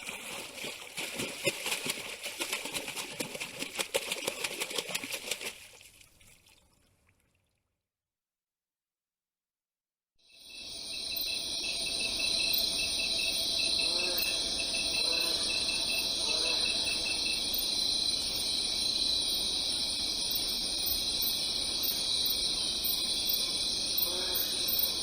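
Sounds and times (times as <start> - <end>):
crickets chirping: 10.2 - 25.0
faint low insect calls: 10.2 - 25.0.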